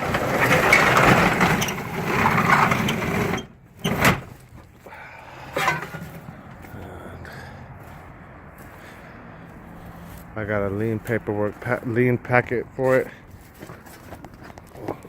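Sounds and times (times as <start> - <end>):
metal rattling: 5.5 - 6.3.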